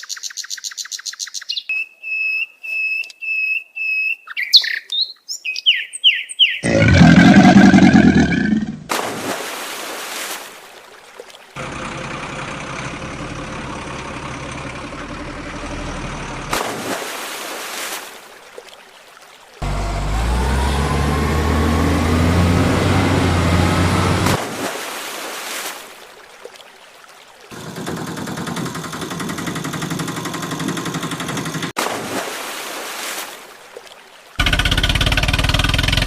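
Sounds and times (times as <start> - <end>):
heavy vehicle engine rumble revving: 11.6 - 16.6, 19.6 - 24.4, 34.4 - 36.0.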